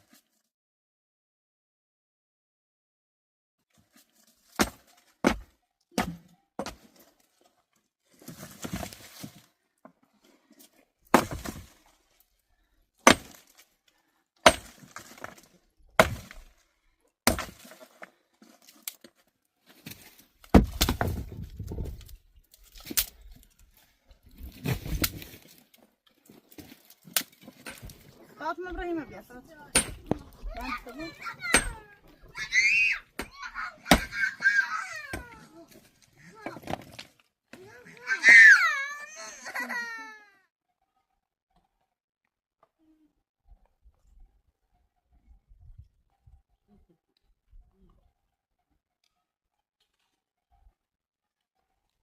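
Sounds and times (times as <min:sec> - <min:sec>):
rustling and scraping: 0:03.7 - 0:05.2, 0:06.7 - 0:12.3, 0:17.5 - 0:33.5
hard objects knocking: 0:29.7 - 0:30.8.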